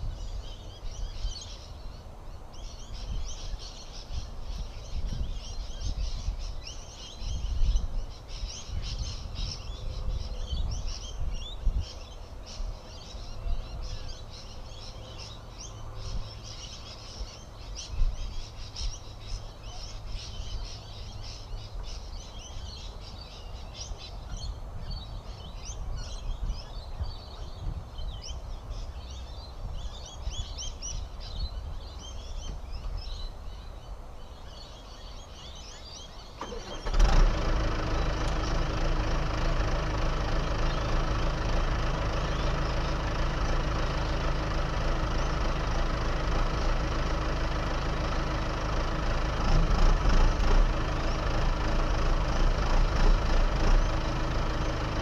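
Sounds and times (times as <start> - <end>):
birds chirping: 0.0 - 55.0
diesel engine of earthmoving machine: 35.4 - 55.0.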